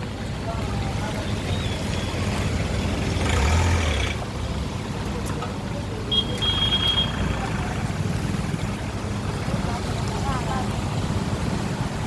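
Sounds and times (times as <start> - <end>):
steady traffic: 0.0 - 12.0
vehicle engine running: 0.0 - 12.0
water splashing on road: 0.0 - 12.0.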